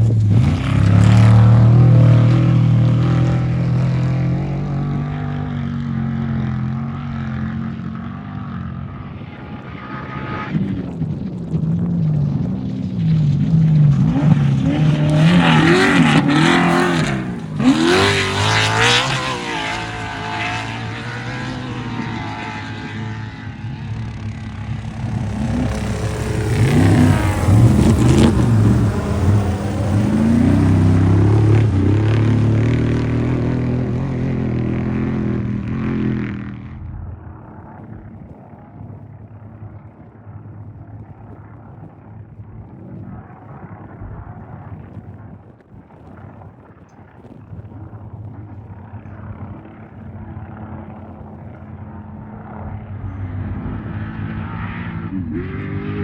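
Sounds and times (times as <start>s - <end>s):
race engines revving past: 0.0s - 11.1s, 11.8s - 37.0s.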